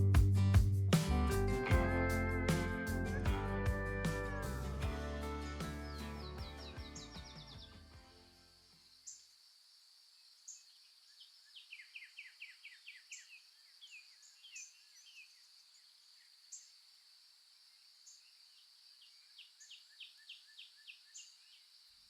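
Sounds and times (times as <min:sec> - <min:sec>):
bird chirps: 0:02.2 - 0:08.0.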